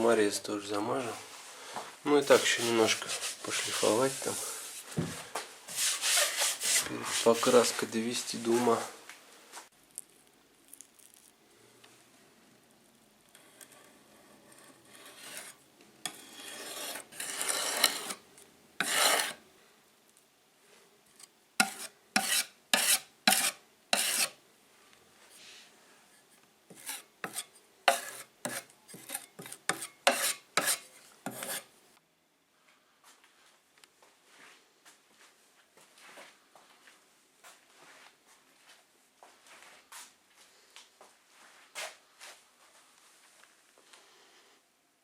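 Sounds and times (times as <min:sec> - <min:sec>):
sandpaper rasping on plywood: 0:02.2 - 0:04.4, 0:05.7 - 0:07.6, 0:16.2 - 0:18.2, 0:18.8 - 0:19.4, 0:21.6 - 0:24.3, 0:26.7 - 0:31.6.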